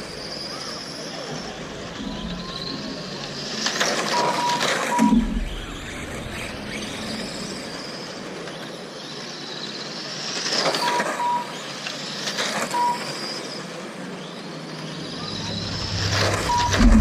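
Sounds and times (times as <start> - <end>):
electric motors whining: 0.0 - 9.1, 13.4 - 17.0
short electronic beeps: 4.1 - 5.6, 15.1 - 17.0.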